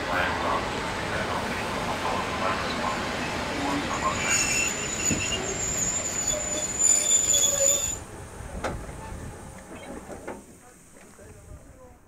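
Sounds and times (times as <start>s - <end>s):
train running noise: 0.0s - 11.4s
train wheels squealing on rail: 2.6s - 8.0s.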